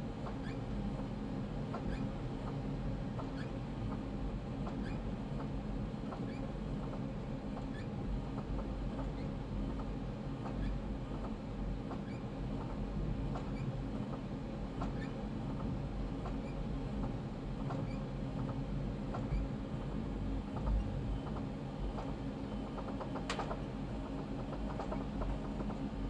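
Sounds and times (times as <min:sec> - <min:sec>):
train car low hum: 0:00.0 - 0:26.0
wheel squeaks and ticks on rails: 0:00.2 - 0:00.7, 0:01.7 - 0:02.6, 0:03.2 - 0:04.0, 0:04.7 - 0:05.5, 0:06.1 - 0:12.8, 0:13.4 - 0:13.7, 0:14.8 - 0:19.5, 0:20.6 - 0:25.9.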